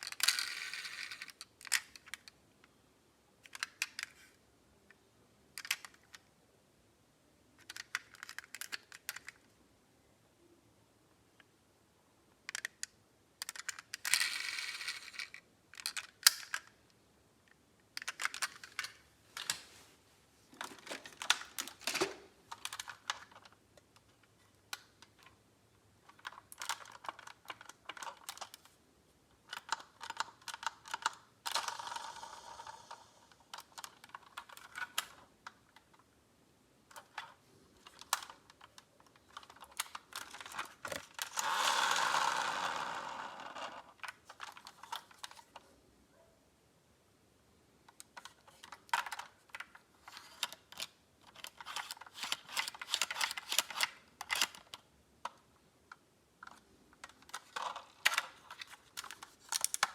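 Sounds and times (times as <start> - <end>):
metal toy cars clicking together: 0.0 - 2.4, 3.4 - 4.4, 5.6 - 6.2, 7.6 - 9.5, 12.5 - 16.8, 17.9 - 19.6, 20.6 - 25.4, 26.0 - 28.7, 29.4 - 36.0, 36.9 - 45.6, 47.9 - 55.5, 56.4 - 59.9.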